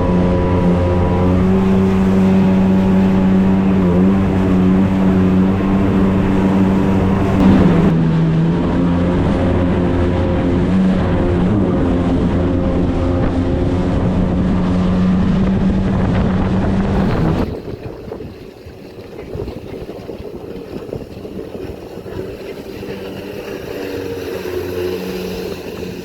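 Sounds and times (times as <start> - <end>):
distant engine drone: 0.0 - 17.6
jet ski engine running: 0.0 - 26.0.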